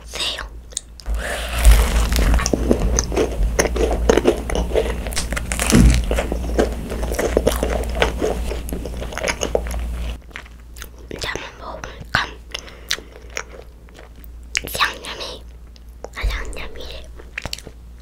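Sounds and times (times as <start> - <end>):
crunchy biting and chewing: 0.7 - 11.4, 17.2 - 17.8.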